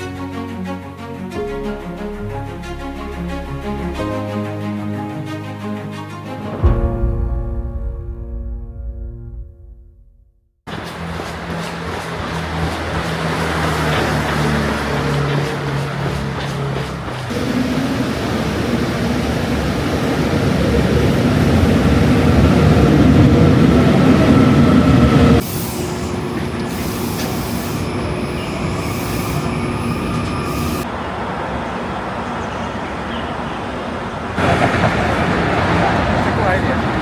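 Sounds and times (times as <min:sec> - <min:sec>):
rumbling vehicle noise: 0:10.7 - 0:37.0.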